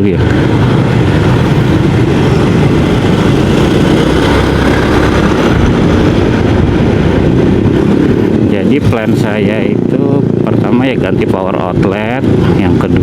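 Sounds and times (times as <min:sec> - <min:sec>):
wind rumble on microphone: 0:00.0 - 0:13.0
scooter engine running: 0:00.2 - 0:08.5.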